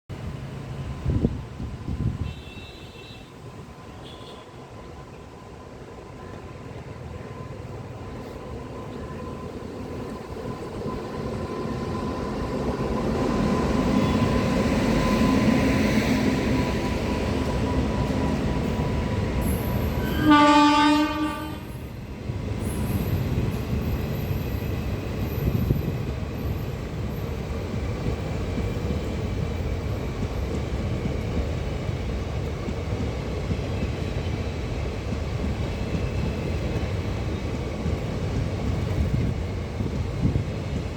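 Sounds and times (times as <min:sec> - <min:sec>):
freight train rumbling: 0:00.1 - 0:40.9
train horn blast: 0:02.2 - 0:03.4, 0:19.9 - 0:21.8.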